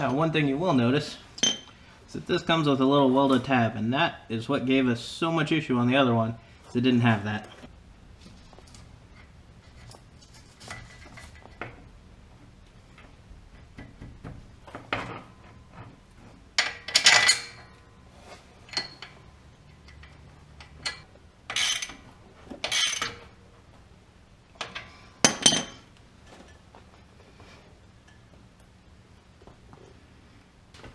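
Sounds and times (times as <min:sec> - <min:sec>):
metallic clanks of tools and parts: 0:00.0 - 0:01.8, 0:16.6 - 0:17.9, 0:18.6 - 0:23.4, 0:24.6 - 0:26.8.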